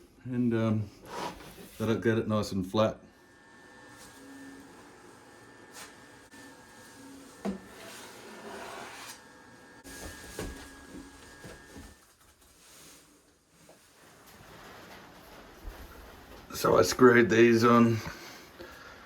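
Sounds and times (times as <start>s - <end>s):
rubbing scrape: 5.7s - 10.3s.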